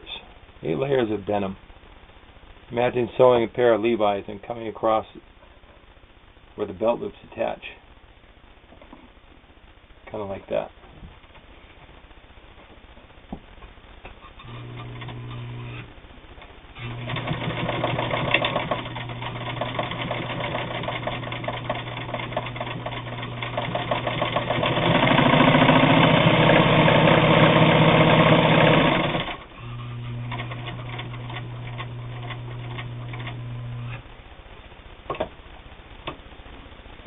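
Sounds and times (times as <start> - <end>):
low steady hum: 0.0 - 26.3, 27.1 - 37.0
sewing machine stitching: 16.8 - 34.0.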